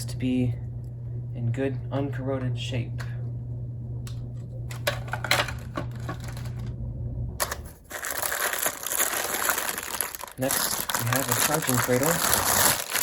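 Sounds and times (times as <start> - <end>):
low hum: 0.0 - 13.0
packaging crinkling: 5.4 - 6.7, 7.4 - 13.0.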